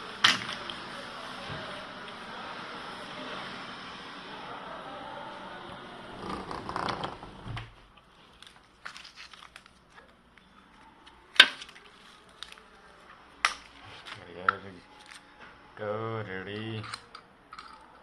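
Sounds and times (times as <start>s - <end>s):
crinkling rustling handling noise: 7.9s - 15.5s.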